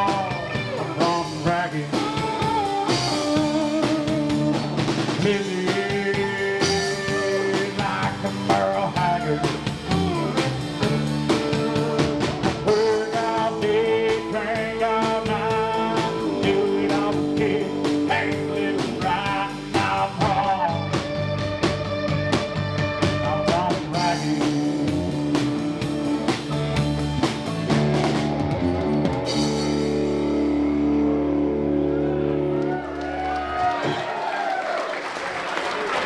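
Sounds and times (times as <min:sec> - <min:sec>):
steady drum beat: 0:00.0 - 0:30.5
lead electric guitar: 0:00.0 - 0:33.4
bass: 0:00.0 - 0:34.5.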